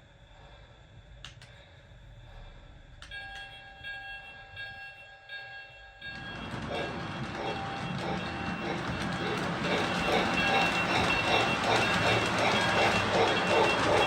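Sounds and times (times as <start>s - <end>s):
model train electronic bell ringing: 3.1s - 14.0s
model train running on track: 3.1s - 14.0s.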